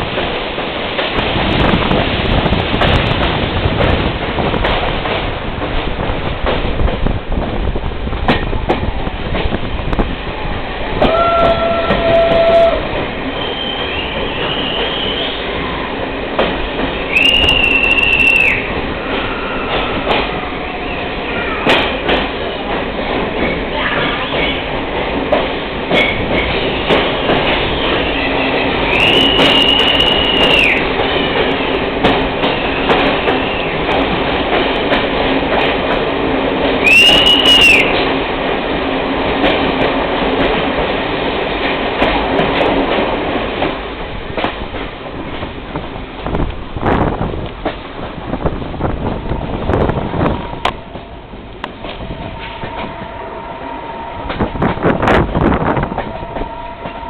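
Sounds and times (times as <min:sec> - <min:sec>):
train rumbling on rails: 0:00.0 - 0:57.0
wheels clacking over rail joints: 0:16.0 - 0:53.2
high wheel squeals: 0:17.1 - 0:20.0.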